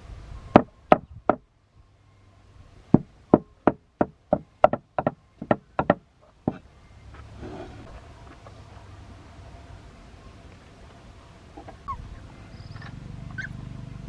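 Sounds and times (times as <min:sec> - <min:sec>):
sharp knocks: 0:00.5 - 0:01.4, 0:02.9 - 0:06.7.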